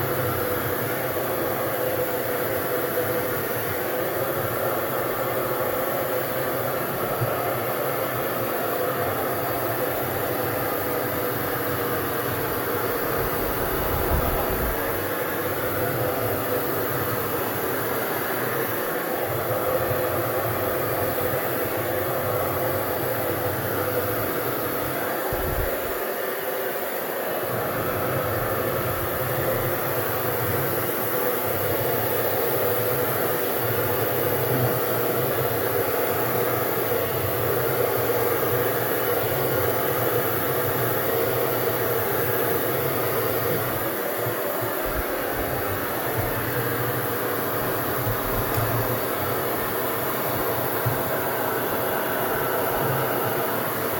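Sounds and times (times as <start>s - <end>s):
hair dryer running: 0.0s - 53.9s.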